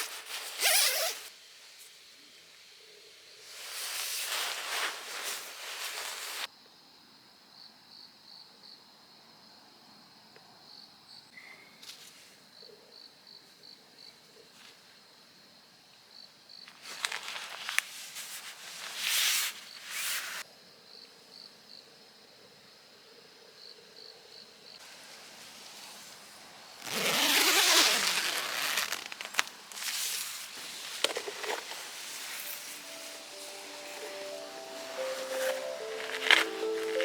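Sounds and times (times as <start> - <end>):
rustling noises: 0.0 - 1.3, 3.4 - 6.5, 16.7 - 20.4, 24.8 - 37.0
crickets chirping: 18.8 - 37.0.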